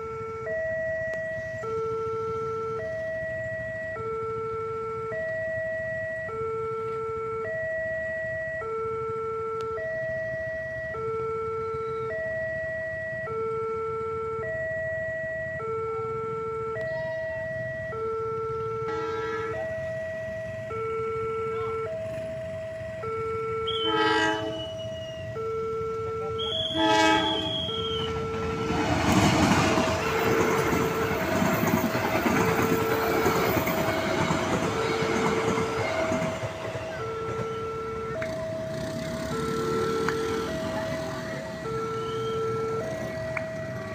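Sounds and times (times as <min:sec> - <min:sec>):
train horn: 0:18.8 - 0:19.6, 0:23.6 - 0:25.1, 0:26.4 - 0:29.0
train wheels clattering on rails: 0:28.6 - 0:37.4.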